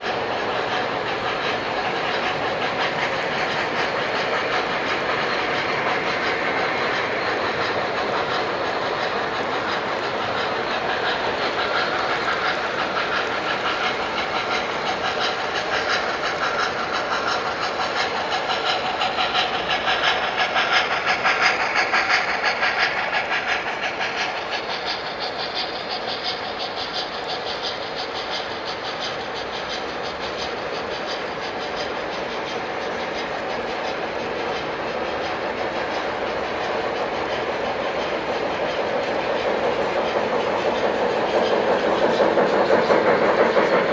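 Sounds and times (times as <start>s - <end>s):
model train wheels clicking on track: 0.0s - 43.9s.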